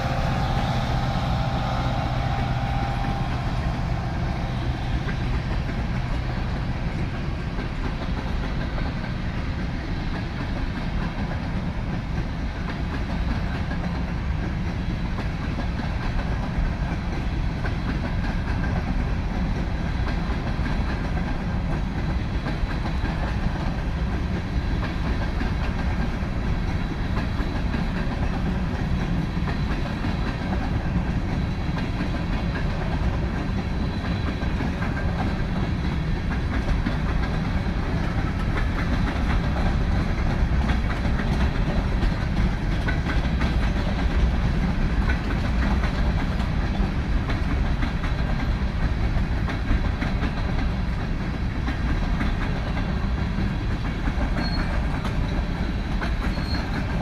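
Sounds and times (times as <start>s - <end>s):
diesel locomotive drone: 0.0s - 57.0s
train wheels rumbling on track: 0.0s - 57.0s.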